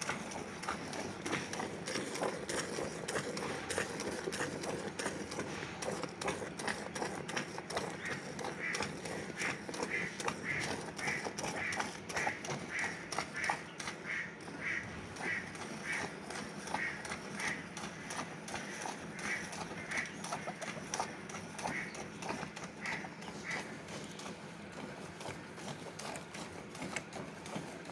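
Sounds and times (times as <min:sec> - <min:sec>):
milk squirting into a bucket: 0:00.0 - 0:13.9.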